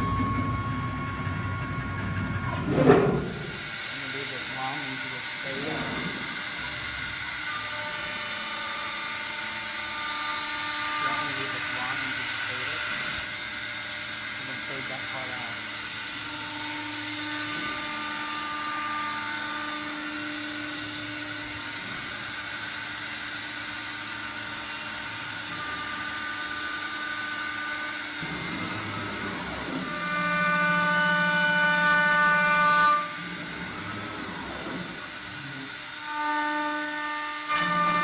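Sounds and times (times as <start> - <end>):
cnc router spindle whine: 0.0 - 38.0.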